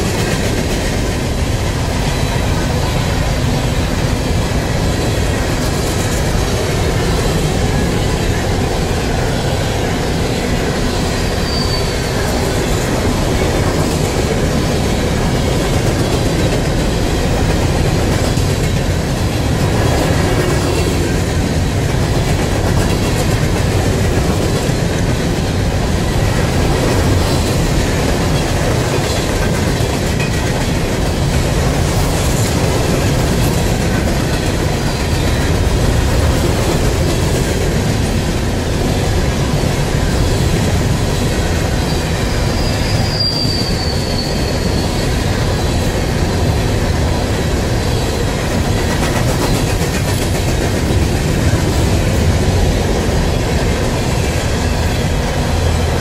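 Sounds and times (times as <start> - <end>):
train wheels clattering on rails: 0.0 - 56.0
high-pitched wheel squeal: 11.4 - 12.2, 41.9 - 45.2.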